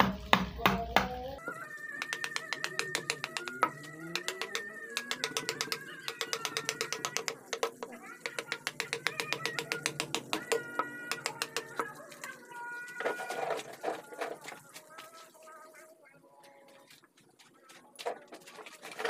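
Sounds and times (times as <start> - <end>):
animal calls: 1.3 - 16.7
mallet tapping chisel into wood: 2.1 - 11.7.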